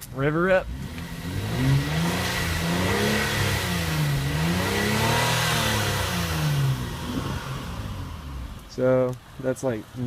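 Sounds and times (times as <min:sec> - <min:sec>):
car engine revving: 0:00.1 - 0:10.0.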